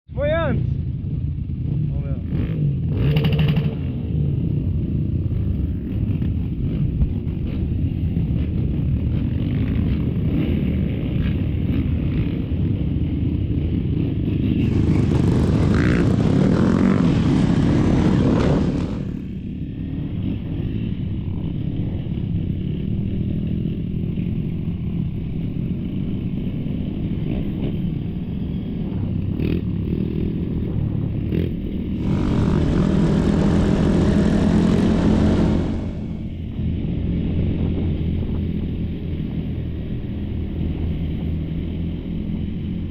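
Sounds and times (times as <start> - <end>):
dirt bike engine running: 28.2 - 38.6.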